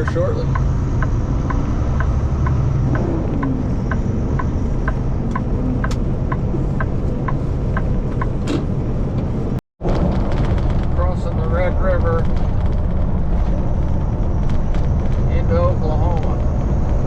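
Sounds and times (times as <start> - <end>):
turn signal ticking: 0.0 - 8.4
diesel engine droning: 0.0 - 17.0.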